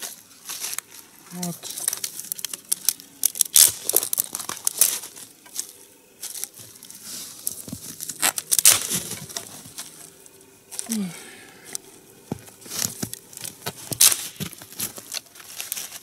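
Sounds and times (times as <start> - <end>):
dry twigs rustling and snapping: 0.0 - 16.0.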